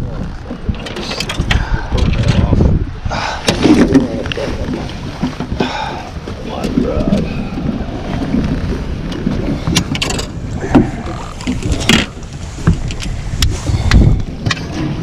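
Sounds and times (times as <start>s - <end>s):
knocks and splashes: 0.0s - 15.0s
wind on microphone: 0.0s - 15.0s
fish thrashing in boat: 0.2s - 15.0s.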